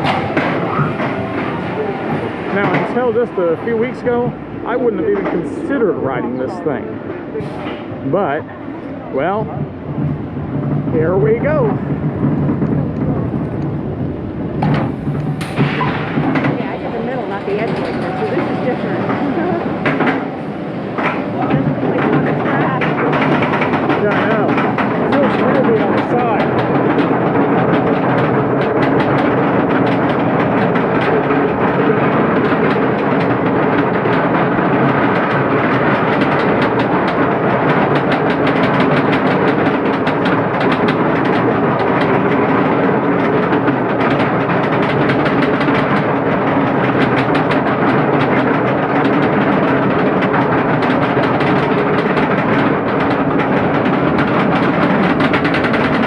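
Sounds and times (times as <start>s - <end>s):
roller coaster lift chain clanking: 0.0s - 56.0s.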